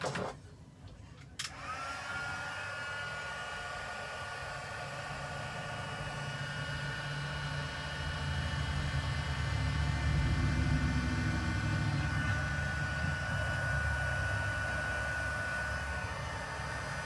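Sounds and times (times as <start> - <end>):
heat gun fan whining: 1.3 - 17.0.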